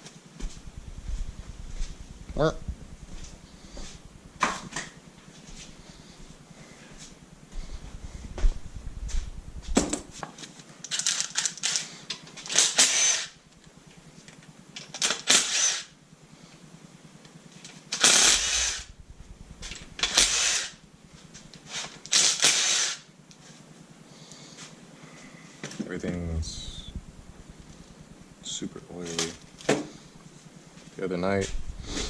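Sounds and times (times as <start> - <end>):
power tool short bursts: 12.5 - 13.4, 15.0 - 15.9, 18.0 - 18.9, 20.0 - 20.8, 21.7 - 23.1.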